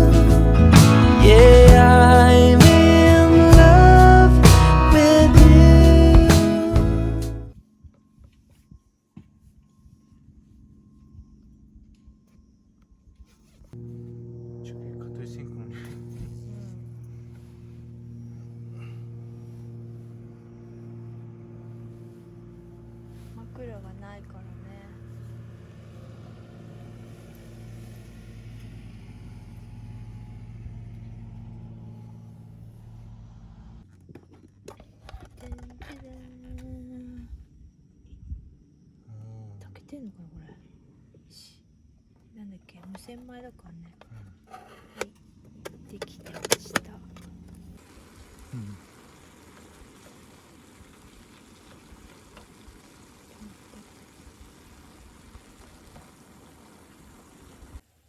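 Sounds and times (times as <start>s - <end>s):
low motor hum: 0.0s - 7.5s, 13.8s - 37.4s, 43.6s - 57.8s
faint outdoor hiss: 0.0s - 58.0s
low voice-like sound: 48.5s - 48.8s.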